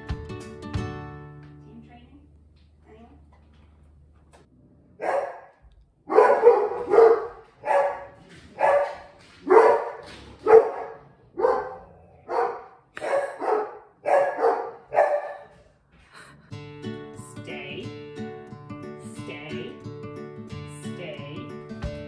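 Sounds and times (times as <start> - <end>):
dog barking: 5.0 - 15.6.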